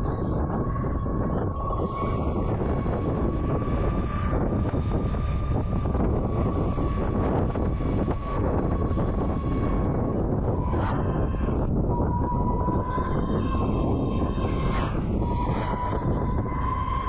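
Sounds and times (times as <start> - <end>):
wind rushing over microphone: 0.0 - 17.0
electric motor whine: 2.0 - 12.5.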